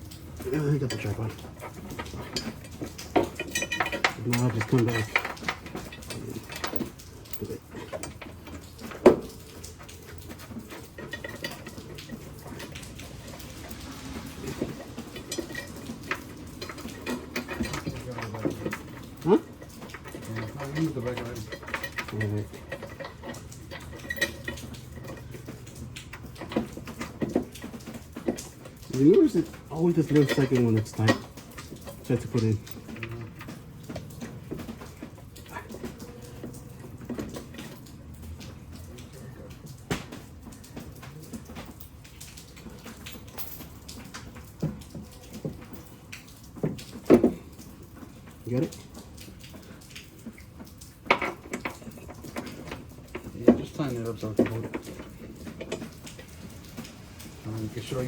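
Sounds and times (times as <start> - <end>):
low steady hum: 0.0 - 39.8
hand tools clicking and tapping: 0.0 - 58.0
low steady background noise: 0.0 - 58.0.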